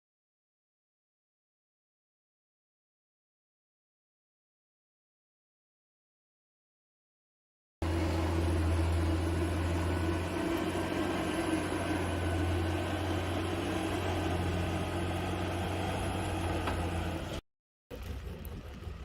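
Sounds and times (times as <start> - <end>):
vehicle cabin drone: 7.8 - 19.0.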